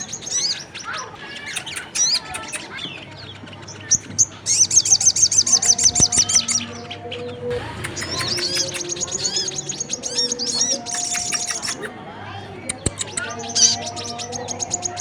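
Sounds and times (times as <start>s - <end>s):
fast trill of sharp chirps: 7.5s - 11.9s.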